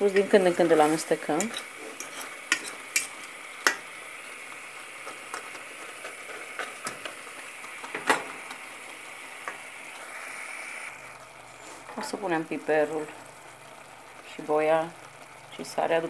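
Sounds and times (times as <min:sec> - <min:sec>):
livers and onions sizzling: 0:00.0 - 0:16.0
fork clicking and scraping a pot: 0:01.4 - 0:03.8.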